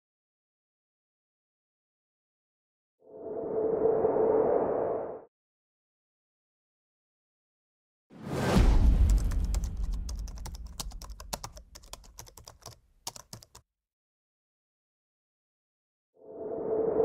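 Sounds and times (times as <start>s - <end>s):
loud low boom: 8.4s - 10.4s
keyboard typing clicks: 9.1s - 13.6s.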